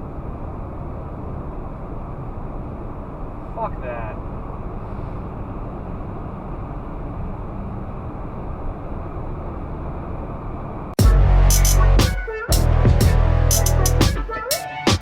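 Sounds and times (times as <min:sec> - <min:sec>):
electronic music with heavy beat: 0:11.0 - 0:15.0.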